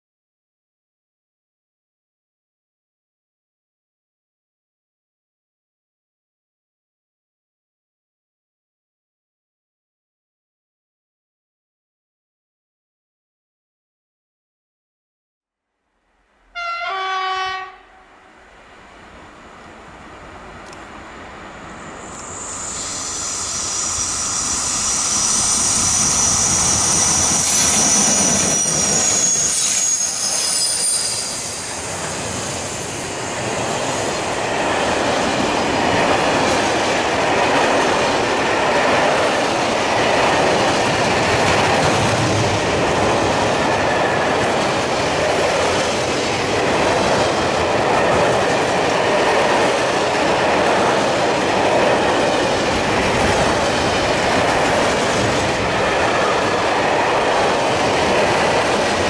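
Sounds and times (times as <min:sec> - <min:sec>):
train wagons rumbling on rails: 0:19.8 - 0:59.0.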